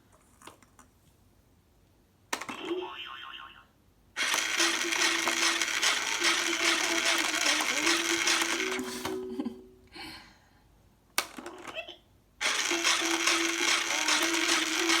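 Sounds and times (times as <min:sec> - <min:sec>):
motorized toy whirring: 0:04.2 - 0:09.0, 0:12.4 - 0:15.0.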